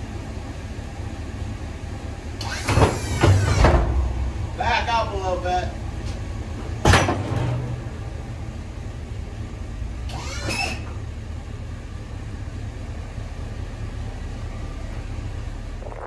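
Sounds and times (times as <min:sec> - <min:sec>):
pickup truck engine idling: 0:00.0 - 0:02.6, 0:03.3 - 0:16.0
brief squeal: 0:10.1 - 0:11.0.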